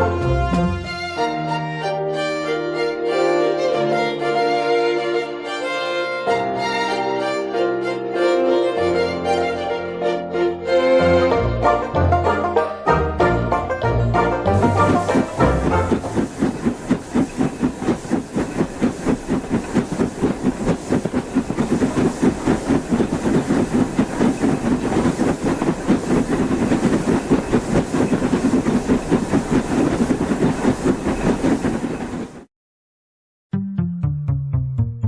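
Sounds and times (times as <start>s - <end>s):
steam locomotive exhaust chuffing: 14.4s - 32.5s
steady steam hiss: 14.6s - 32.3s.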